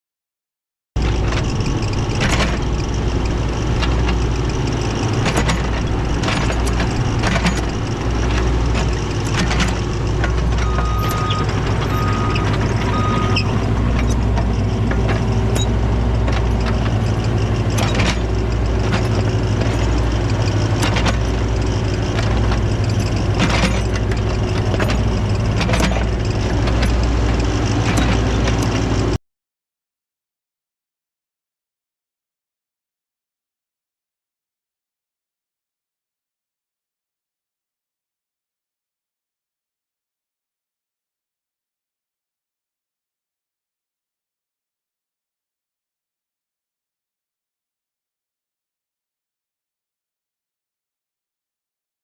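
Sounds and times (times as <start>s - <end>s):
excavator diesel engine running: 1.0s - 29.2s
short beeps: 10.6s - 13.5s
metallic clanks: 13.2s - 29.0s.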